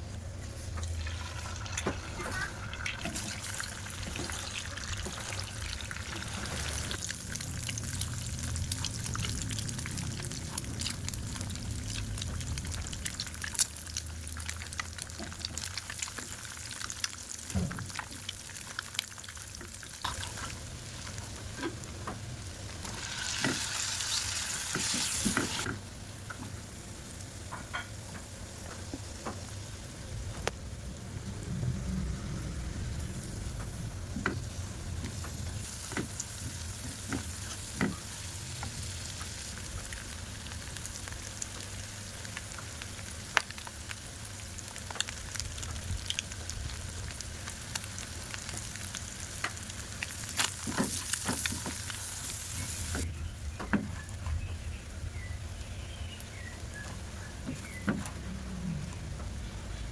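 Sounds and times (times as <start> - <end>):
food sizzling in a pan: 22.4 - 26.1, 34.4 - 53.1.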